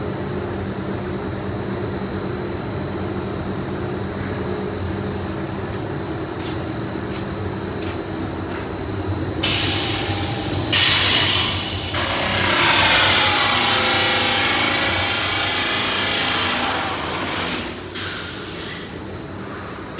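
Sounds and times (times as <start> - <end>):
factory machinery humming: 7.5 - 19.9
loud hiss: 9.4 - 19.2.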